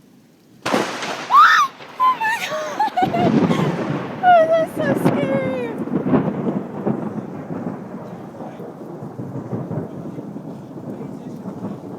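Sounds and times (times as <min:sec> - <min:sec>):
heavy rain: 0:00.0 - 0:11.9
thunder rumbling: 0:00.6 - 0:11.9.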